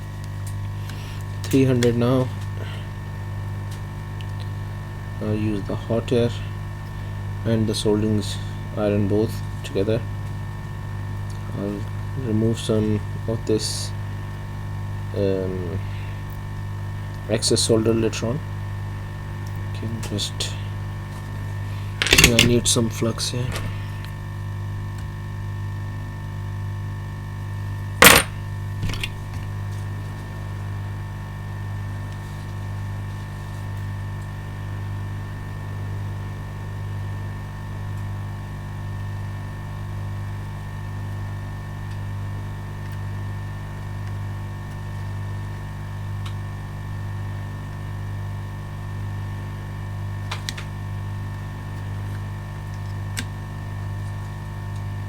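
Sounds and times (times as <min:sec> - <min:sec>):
hot air blower humming: 0:00.0 - 0:26.2, 0:27.8 - 0:31.8
small tool set down click: 0:22.0 - 0:22.5, 0:28.0 - 0:29.2.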